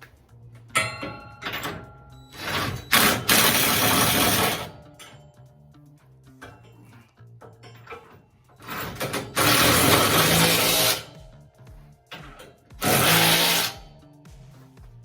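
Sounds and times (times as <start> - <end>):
faint background music: 0.0 - 15.0
handheld power tool running: 3.0 - 4.8, 9.0 - 11.2, 12.8 - 13.9.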